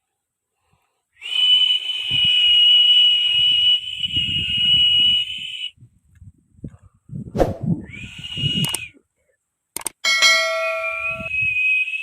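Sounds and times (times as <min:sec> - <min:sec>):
toy jet high-pitched whistle: 0:07.9 - 0:09.0, 0:10.6 - 0:12.0.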